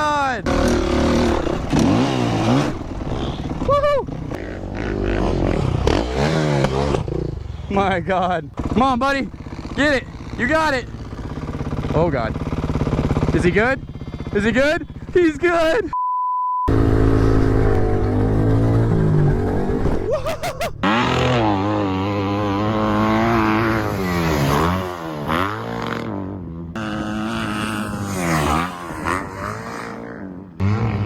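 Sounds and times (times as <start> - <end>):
dirt bike engines revving: 0.0 - 15.9, 16.7 - 31.0
short one-tone beep: 15.9 - 16.7.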